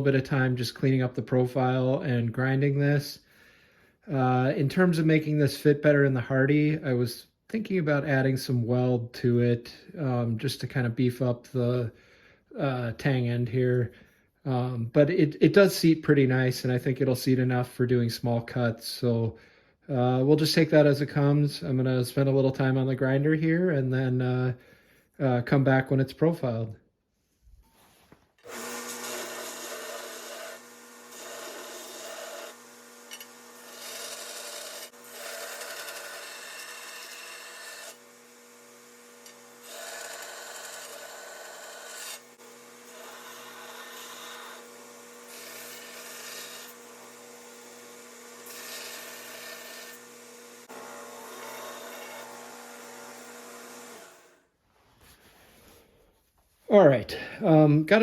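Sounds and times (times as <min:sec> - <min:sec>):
electric grinder grinding steel: 0:28.4 - 0:54.5.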